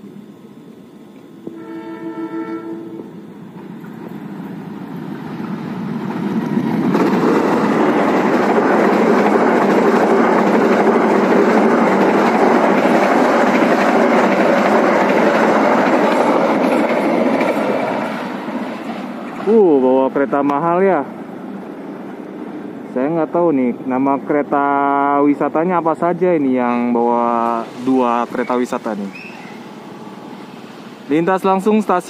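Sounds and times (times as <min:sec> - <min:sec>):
train passing at speed: 0:00.0 - 0:32.0
train horn blast: 0:01.4 - 0:03.2.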